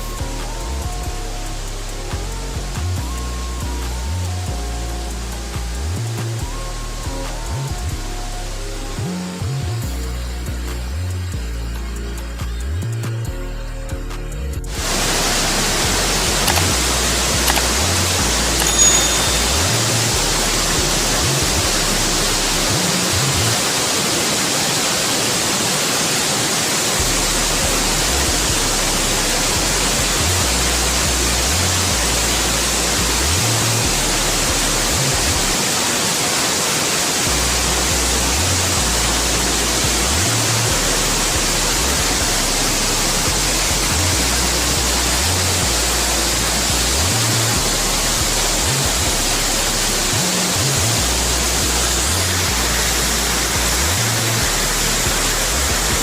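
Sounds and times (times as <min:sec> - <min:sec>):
waterfall roaring: 0:22.7 - 0:27.0, 0:35.6 - 0:40.3.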